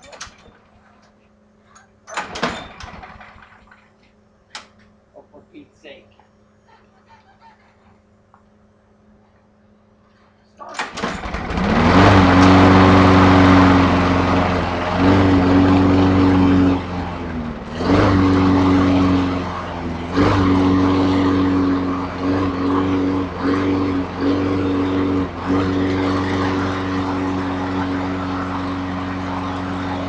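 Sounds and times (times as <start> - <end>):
lawn mower engine running unevenly: 2.0 - 3.7, 10.7 - 30.0.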